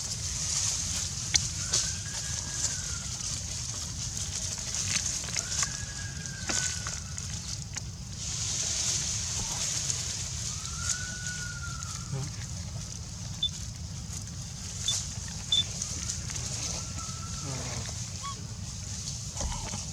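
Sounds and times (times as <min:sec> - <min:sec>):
insects hissing: 0:05.1 - 0:19.9
whistle-like call: 0:10.5 - 0:12.2, 0:14.9 - 0:15.7.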